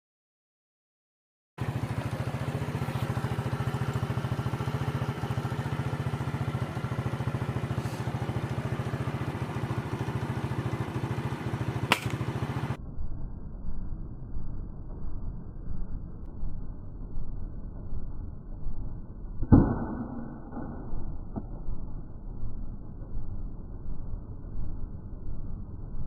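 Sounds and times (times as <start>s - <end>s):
engine running with fast pulse: 1.6s - 26.0s
sharp crack: 11.7s - 12.7s, 19.4s - 20.6s.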